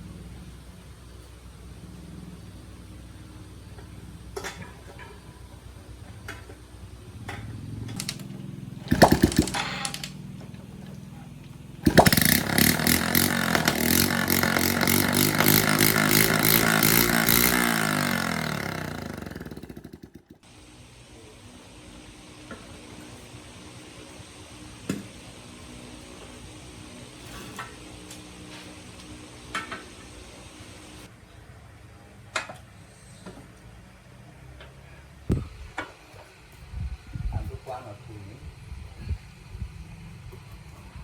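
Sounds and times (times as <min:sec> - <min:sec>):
small motorbike engine: 0:00.0 - 0:31.2, 0:32.9 - 0:41.0.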